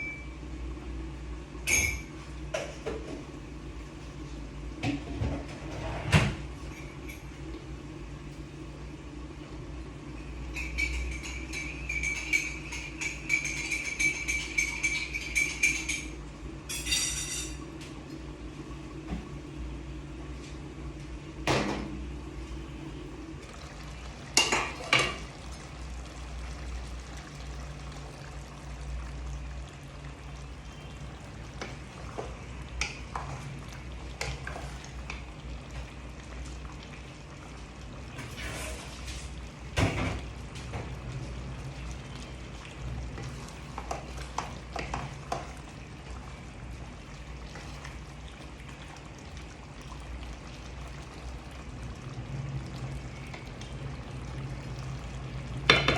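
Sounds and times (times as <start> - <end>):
utensils clinking against pot: 1.7 - 3.0, 10.4 - 17.6.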